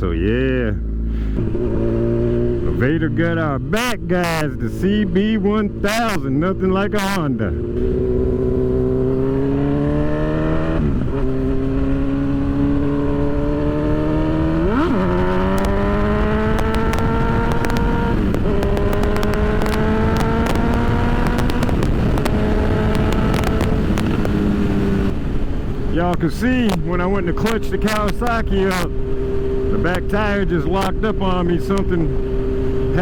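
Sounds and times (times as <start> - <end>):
motorcycle engine accelerating: 0.0 - 33.0
wind rush: 7.4 - 33.0.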